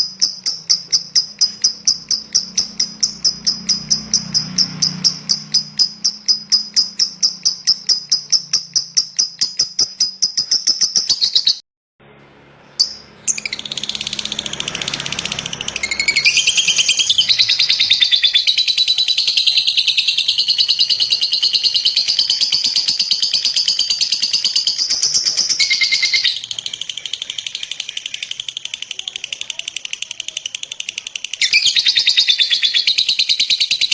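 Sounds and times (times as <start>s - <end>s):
lovebird chattering: 0.0s - 11.6s, 12.8s - 33.9s.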